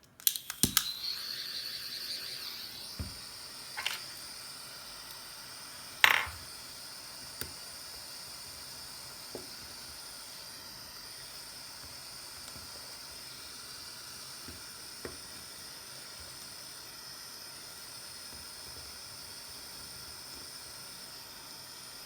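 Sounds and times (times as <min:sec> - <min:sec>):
small tools clicking and tapping: 0:03.8 - 0:04.2.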